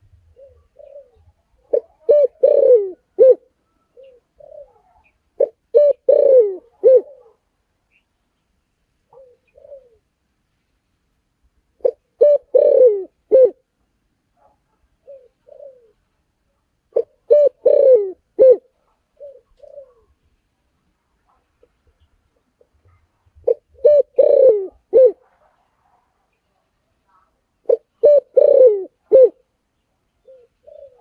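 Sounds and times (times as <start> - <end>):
dove cooing: 0.0 - 7.4, 9.1 - 10.1, 11.8 - 13.6, 14.4 - 16.1, 16.9 - 20.2, 21.3 - 25.6, 27.1 - 29.5, 30.2 - 31.0.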